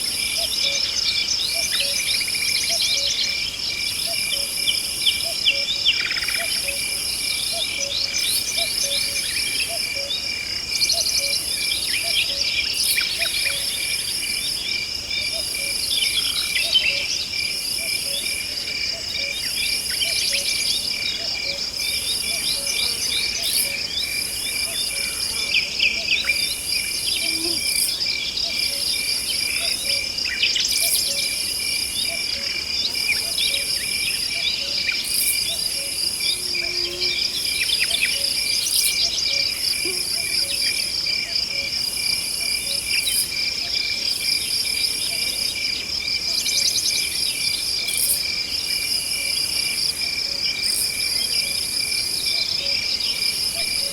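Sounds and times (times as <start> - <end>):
high insect song: 0.0 - 53.9
insects trilling: 0.0 - 53.9.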